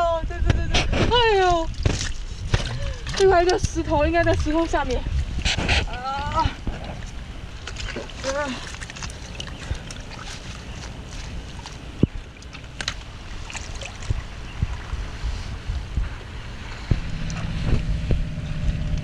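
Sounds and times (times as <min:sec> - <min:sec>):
low engine hum: 0:00.0 - 0:19.0
wind buffeting microphone: 0:00.0 - 0:19.0.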